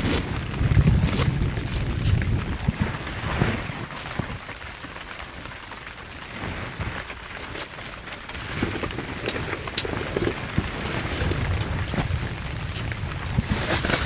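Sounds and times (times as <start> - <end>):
heavy rain falling: 0.0 - 14.0
raindrops tapping close by: 0.0 - 14.0.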